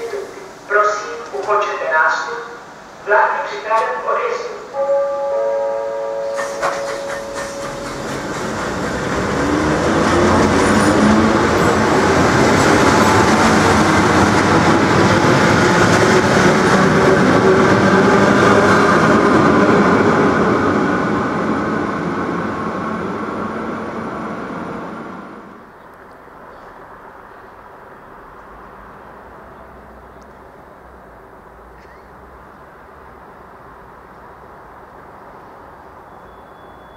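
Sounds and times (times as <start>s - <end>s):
train wheels on rails: 6.0s - 27.0s.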